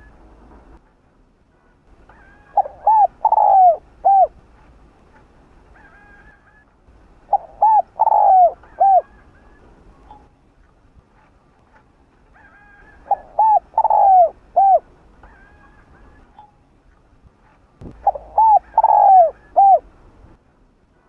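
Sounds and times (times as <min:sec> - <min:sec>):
dove cooing: 0:02.1 - 0:04.4, 0:07.2 - 0:10.1, 0:12.4 - 0:16.4, 0:17.8 - 0:19.9.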